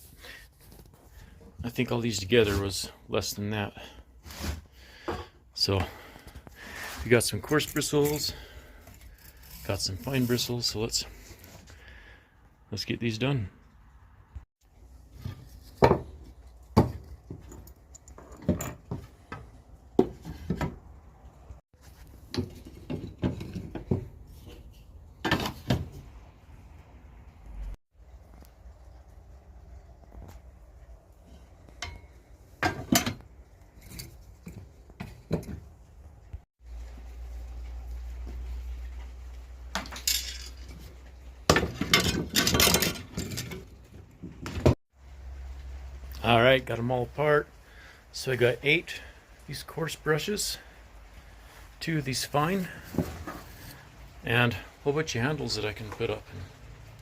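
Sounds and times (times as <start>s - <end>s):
brush handles knocking and scraping: 21.8s - 26.0s.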